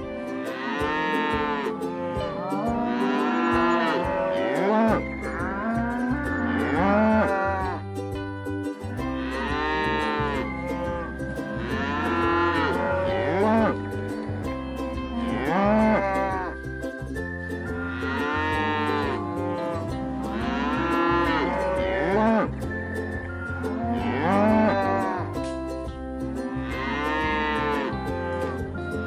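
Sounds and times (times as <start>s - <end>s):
cows mooing: 0.2s - 7.8s, 9.0s - 13.8s, 15.1s - 16.6s, 17.8s - 22.6s, 23.8s - 25.4s, 26.5s - 28.6s.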